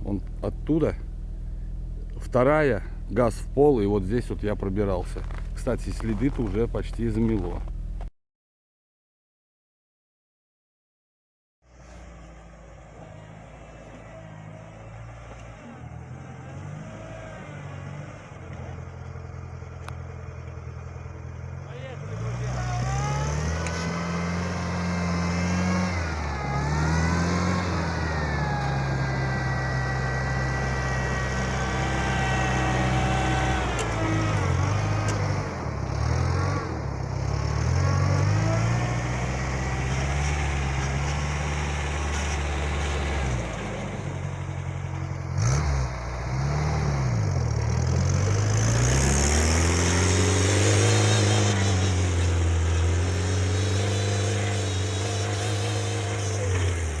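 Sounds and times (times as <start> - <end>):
small tractor engine running: 16.8 - 57.0.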